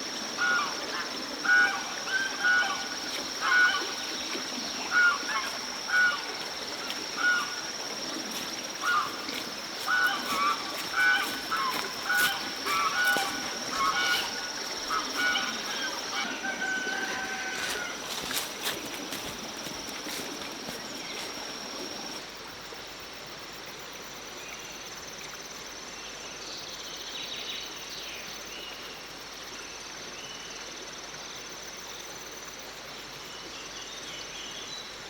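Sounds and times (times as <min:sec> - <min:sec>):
animal honking calls: 0:08.3 - 0:21.9.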